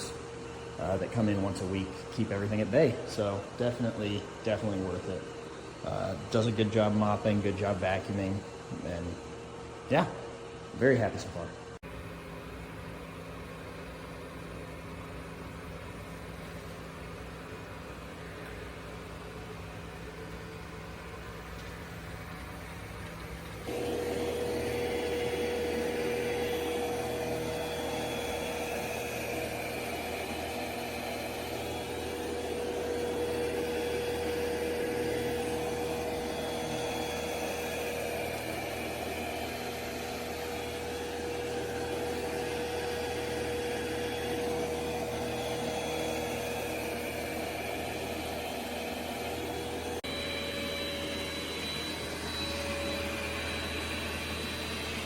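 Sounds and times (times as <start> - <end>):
robot vacuum whirring: 23.6 - 55.0.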